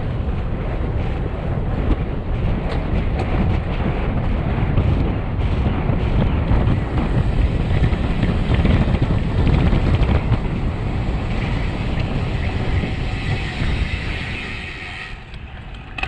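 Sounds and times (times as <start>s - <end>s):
road and tyre noise: 0.0s - 16.0s
wind buffeting microphone: 0.0s - 16.0s.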